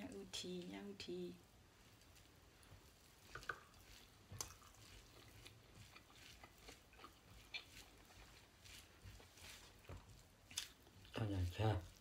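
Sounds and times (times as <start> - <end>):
chewing and mouth smacks: 3.1 - 11.2.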